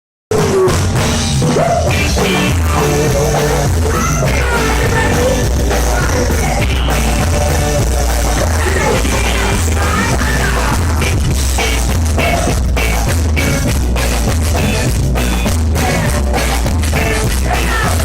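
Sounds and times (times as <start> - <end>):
person singing: 0.3 - 11.2, 15.7 - 18.0
heavy bass: 0.3 - 18.0
loud rock music: 0.3 - 18.0.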